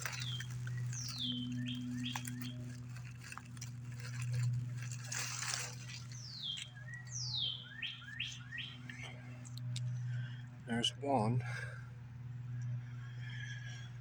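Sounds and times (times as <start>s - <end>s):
rustle: 0.0s - 6.7s
steady low hum: 0.0s - 14.0s
bird whistling calls: 6.2s - 8.8s.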